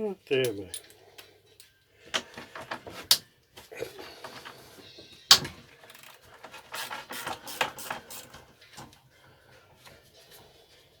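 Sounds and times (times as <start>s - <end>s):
metal tools clinking and scraping: 0.3s - 3.2s.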